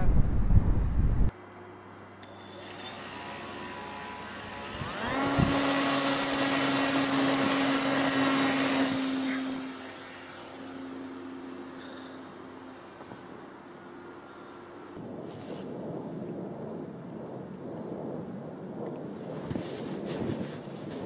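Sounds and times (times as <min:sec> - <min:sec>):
model airplane motor whirring: 0:02.2 - 0:15.0.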